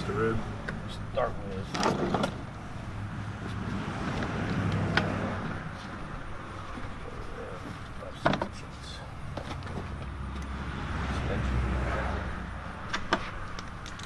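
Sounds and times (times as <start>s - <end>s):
tools clinking and clicking: 12.9s - 14.0s.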